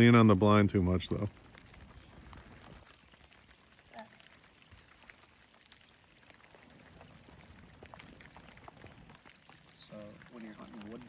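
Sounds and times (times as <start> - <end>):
faint rain falling: 0.0 - 11.0.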